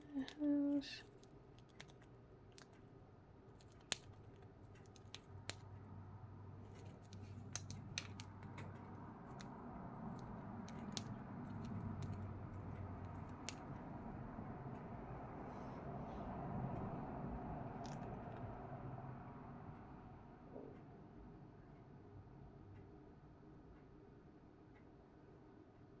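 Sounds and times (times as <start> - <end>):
bird beak cracking food: 1.0 - 2.9, 3.5 - 5.9, 6.7 - 13.9, 17.8 - 18.4.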